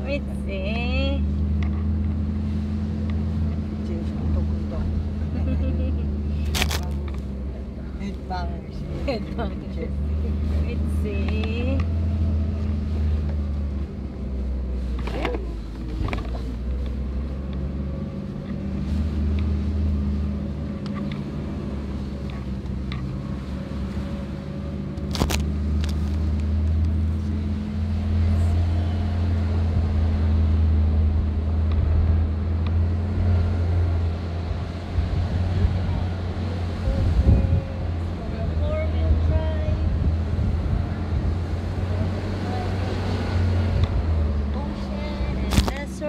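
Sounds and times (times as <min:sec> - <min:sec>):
car engine droning while driving: 0:00.0 - 0:46.0.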